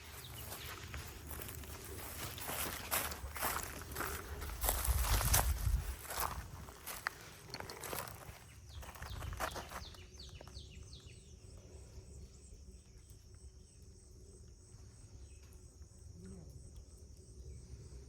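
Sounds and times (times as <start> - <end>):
rustling crunching sounds: 0.0 - 10.6
high insect drone: 0.0 - 18.0.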